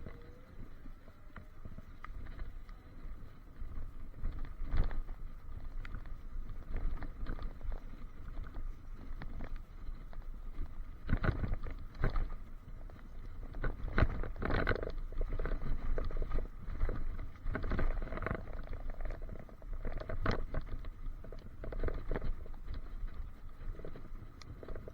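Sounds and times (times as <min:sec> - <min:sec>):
low wind: 0:00.0 - 0:24.9
camera case rattling and knocking: 0:13.5 - 0:23.2.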